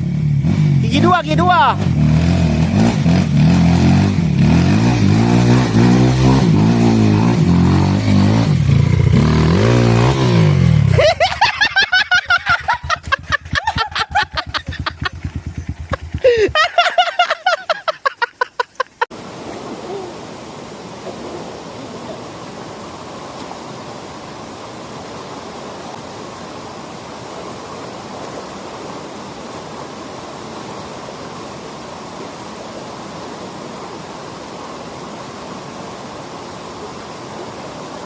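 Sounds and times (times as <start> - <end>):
dirt bike engine revving: 0.0 - 11.2, 12.5 - 16.8.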